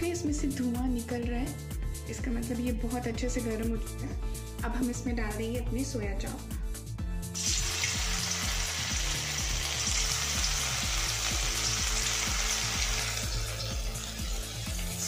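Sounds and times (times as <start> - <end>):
background music with beat: 0.0 - 15.0
food sizzling in hot oil: 7.3 - 15.0.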